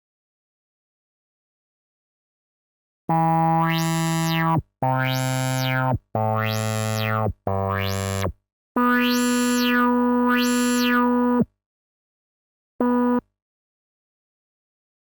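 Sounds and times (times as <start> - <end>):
synthesizer notes: 3.6 - 11.1.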